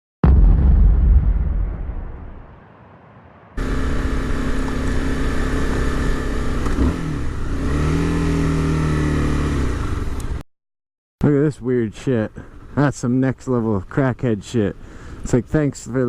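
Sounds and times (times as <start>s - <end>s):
motorcycle engine running: 3.6s - 10.4s.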